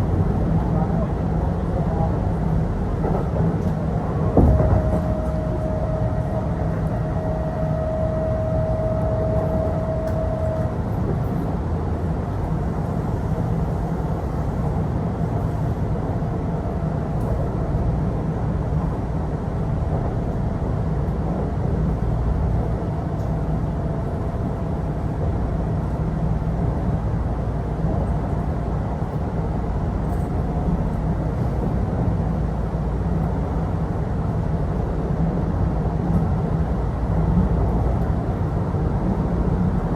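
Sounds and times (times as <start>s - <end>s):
train wheels rumbling: 1.7s - 32.4s
thin steady whine: 4.4s - 11.0s.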